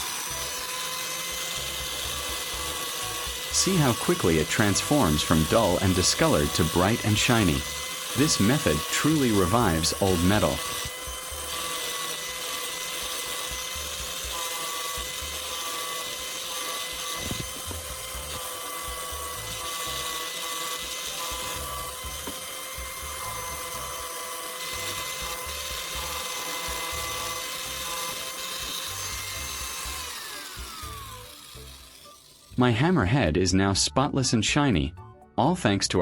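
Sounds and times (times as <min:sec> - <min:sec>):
sanding disc hissing on steel: 0:00.0 - 0:32.9
angle grinder high whine: 0:00.0 - 0:33.4.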